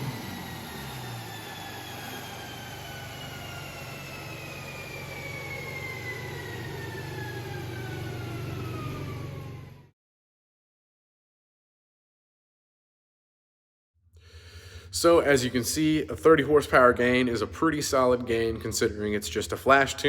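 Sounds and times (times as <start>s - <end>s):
steady low hum: 0.0s - 9.7s
drivetrain whine spinning down: 0.0s - 9.9s.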